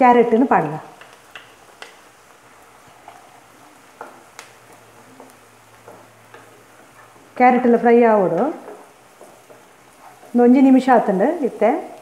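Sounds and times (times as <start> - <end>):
vegetables sizzling in a pan: 0.0 - 12.0
wooden spatula clicking on pan: 0.6 - 2.1, 4.0 - 6.9.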